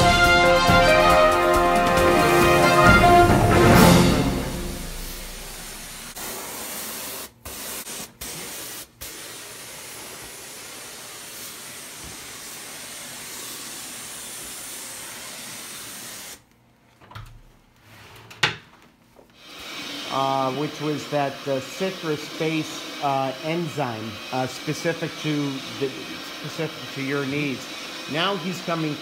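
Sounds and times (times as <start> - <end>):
spray wand hissing: 3.8 - 16.5, 19.4 - 29.0.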